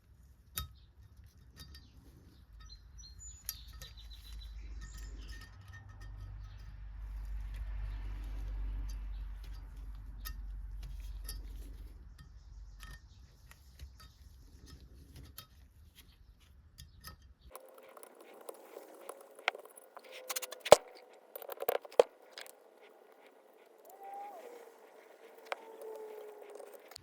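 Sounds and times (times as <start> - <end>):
sharp metallic clinks and clanks: 1.4 - 7.6, 17.1 - 27.0
low hum: 17.5 - 27.0.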